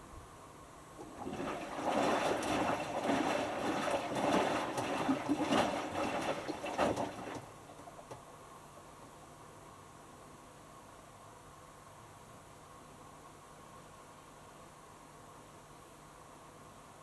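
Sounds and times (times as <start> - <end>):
clothes sloshing in water: 1.0 - 8.0
washing machine drum turning: 1.0 - 8.0.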